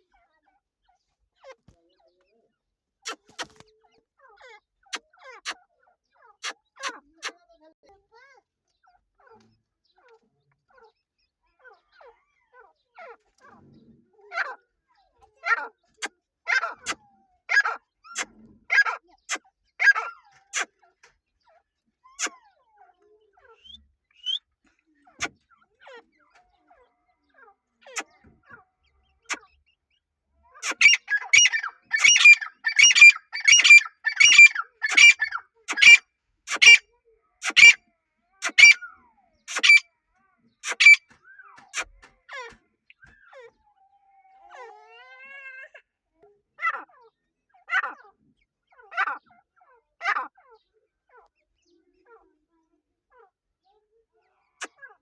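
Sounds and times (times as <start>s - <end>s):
squeaky animal calls: 16.5s - 19.0s, 19.8s - 20.7s, 23.5s - 24.4s, 30.6s - 37.8s, 38.4s - 38.9s, 39.5s - 39.9s, 40.6s - 43.5s.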